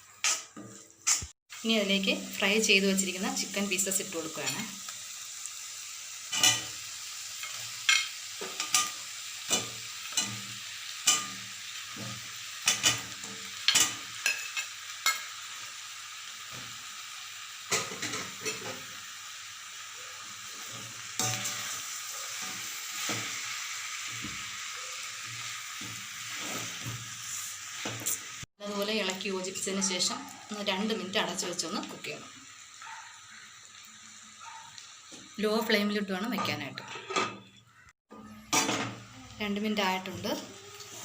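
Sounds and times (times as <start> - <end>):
chicken sizzling in frying pan: 0.0 - 36.8, 38.5 - 41.0
utensil scraping against pan: 0.2 - 1.3.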